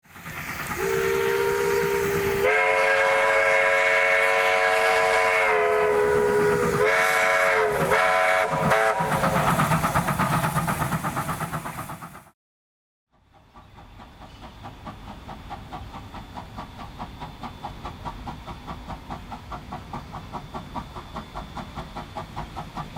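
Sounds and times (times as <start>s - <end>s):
steam engine exhaust beats: 0.0s - 12.4s, 13.2s - 22.9s
steam locomotive whistle: 0.6s - 9.6s.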